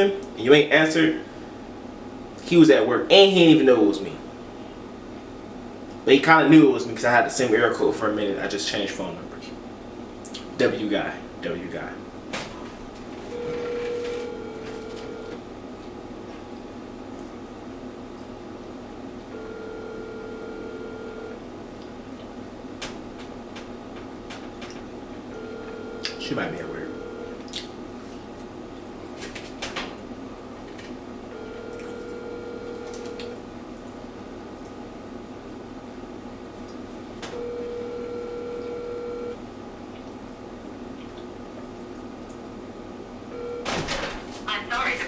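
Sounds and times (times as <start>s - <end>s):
telephone ringback tone: 13.3s - 15.4s, 19.3s - 21.4s, 25.3s - 27.4s, 31.3s - 33.4s, 37.4s - 39.4s, 43.3s - 43.7s.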